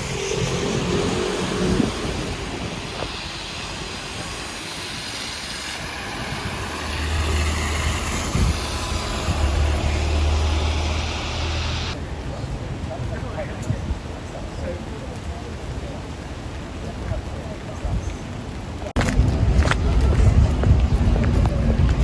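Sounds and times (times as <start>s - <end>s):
low vehicle rumble: 0.0s - 12.0s
city street traffic: 0.0s - 22.0s.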